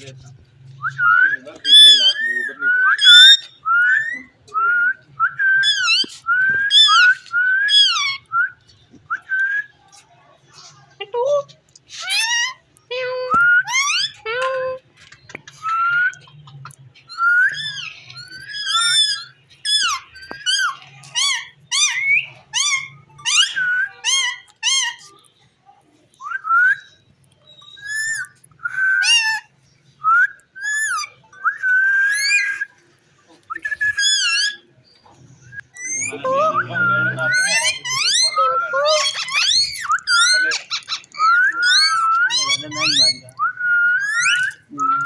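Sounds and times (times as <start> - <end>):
parrot shrill whistled calls: 0.8 - 4.3, 5.4 - 8.3, 12.0 - 12.6, 13.4 - 14.2, 17.1 - 25.2, 26.2 - 29.5, 30.1 - 32.8, 33.5 - 34.7, 35.5 - 45.0.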